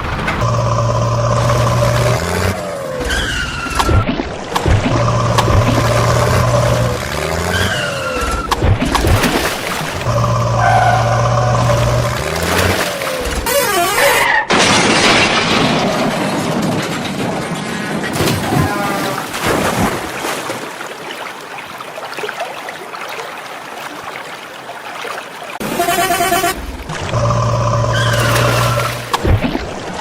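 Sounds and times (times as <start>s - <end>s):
heavy machinery running: 0.0s - 3.1s, 4.6s - 7.5s, 26.5s - 29.4s
sand rushing and clattering: 14.5s - 20.2s.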